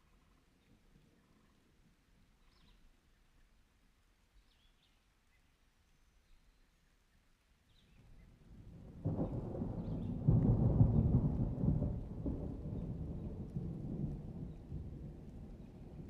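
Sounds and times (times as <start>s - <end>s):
low thunder rumble: 8.4s - 16.0s.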